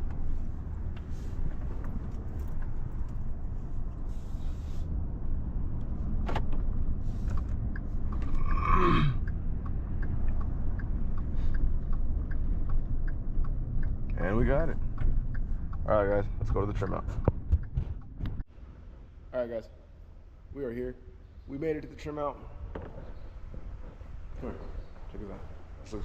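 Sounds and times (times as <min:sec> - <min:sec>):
engine and road rumble: 0:00.0 - 0:26.0
turn signal clicking: 0:05.7 - 0:08.5, 0:09.2 - 0:18.4.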